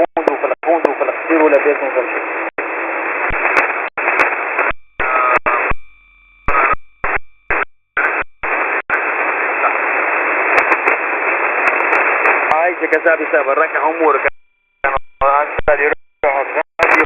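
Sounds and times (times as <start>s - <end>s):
shortwave receiver hiss: 0.3s - 17.0s
faint steady tone: 4.0s - 8.8s.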